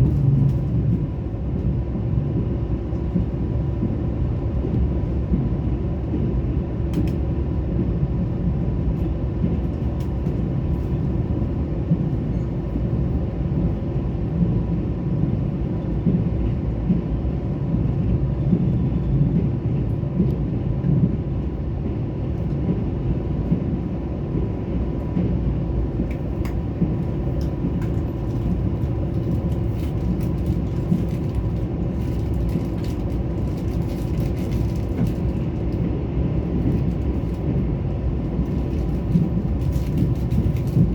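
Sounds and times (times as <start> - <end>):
passenger train rumbling: 0.0 - 40.9.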